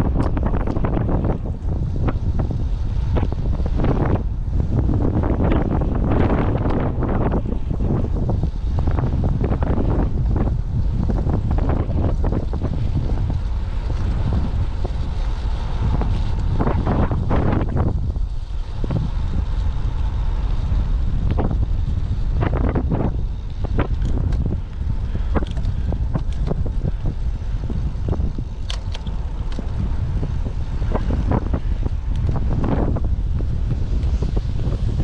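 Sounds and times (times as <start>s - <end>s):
wind buffeting microphone: 0.0s - 35.0s
sharp clicks and rattles: 4.8s - 34.9s.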